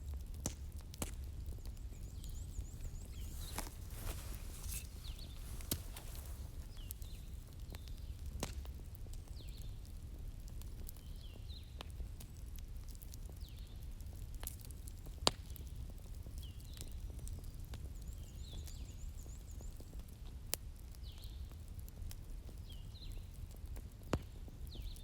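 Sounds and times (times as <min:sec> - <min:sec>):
wood fire crackling: 0:00.0 - 0:25.0
sharp pops: 0:02.7 - 0:07.2.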